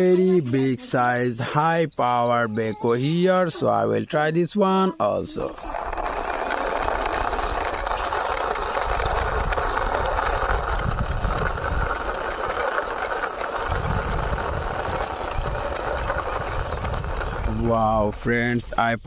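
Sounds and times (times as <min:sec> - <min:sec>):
toy wheels rolling along a wall: 0:00.0 - 0:19.0
bird chirping: 0:01.4 - 0:03.7, 0:12.2 - 0:14.2.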